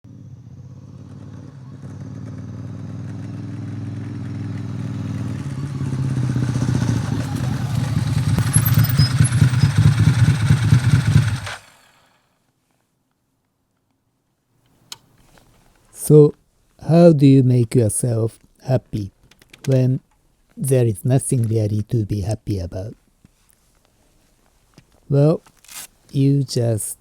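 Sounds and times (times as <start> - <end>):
motorcycle engine running: 0.1 - 12.2.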